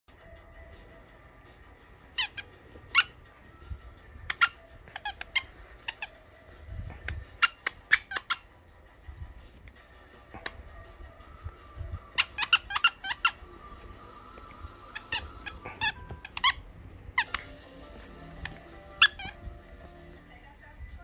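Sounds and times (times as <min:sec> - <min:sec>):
squeaky dog toy squeaking: 0:02.0 - 0:03.3, 0:04.2 - 0:06.2, 0:07.0 - 0:08.6, 0:12.1 - 0:19.8.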